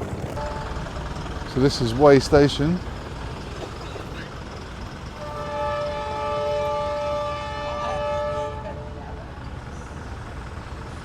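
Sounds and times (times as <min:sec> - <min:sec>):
traffic noise: 0:00.0 - 0:11.0
train horn blast: 0:00.3 - 0:01.1, 0:05.2 - 0:09.2.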